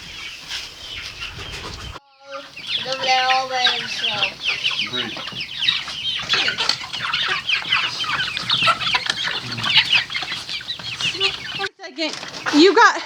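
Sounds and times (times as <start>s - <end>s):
chicks peeping: 0.0s - 12.6s.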